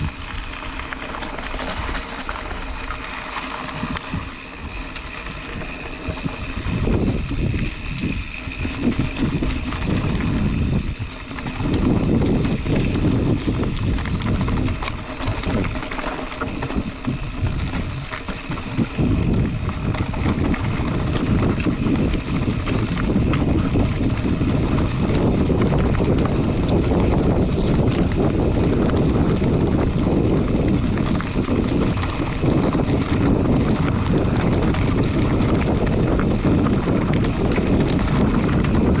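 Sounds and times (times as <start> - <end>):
bike tyres rumbling over dirt: 0.0 - 39.0
wind buffeting microphone: 0.0 - 39.0.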